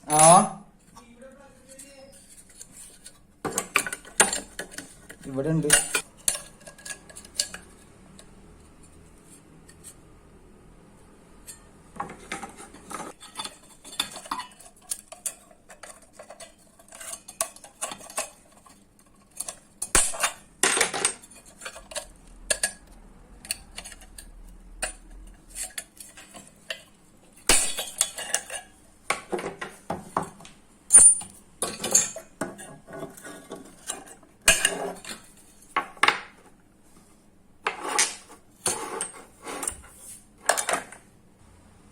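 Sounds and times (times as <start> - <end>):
metal clinking and knocking: 27.5 - 33.2.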